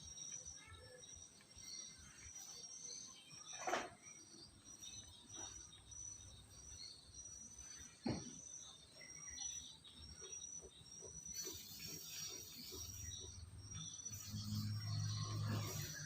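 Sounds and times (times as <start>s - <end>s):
insect chirping: 0.0s - 16.0s.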